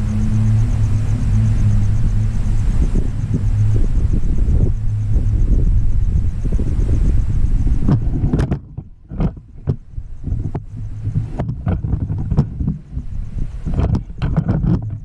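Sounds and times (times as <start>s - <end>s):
loud low rumble: 0.0s - 15.0s
sharp knocks and clicks: 7.9s - 9.8s, 10.4s - 12.8s, 13.7s - 15.0s.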